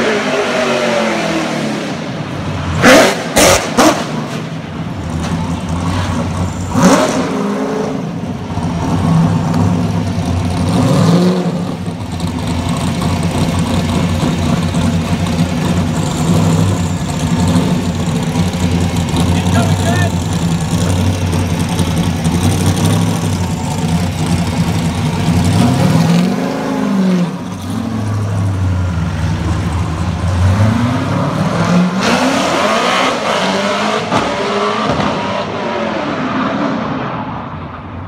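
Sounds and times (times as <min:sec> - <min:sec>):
car engine revving: 0:00.0 - 0:37.4.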